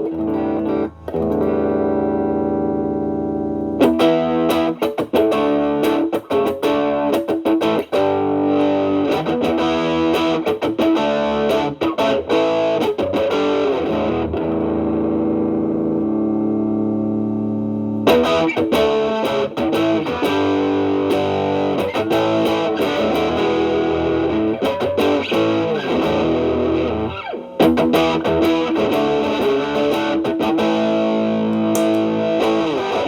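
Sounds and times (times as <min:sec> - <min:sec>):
overdriven electric guitar: 0:00.0 - 0:33.0.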